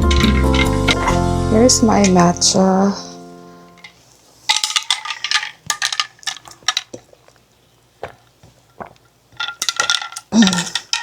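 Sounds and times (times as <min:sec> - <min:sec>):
glassware and utensils clinking: 0:00.0 - 0:01.2, 0:03.8 - 0:07.2, 0:09.4 - 0:11.0.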